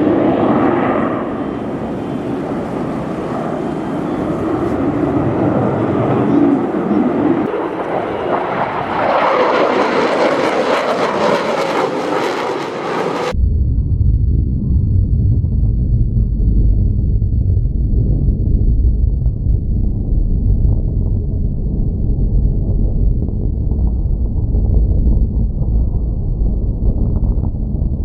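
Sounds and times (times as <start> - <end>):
airplane engine overhead: 0.0 - 24.8.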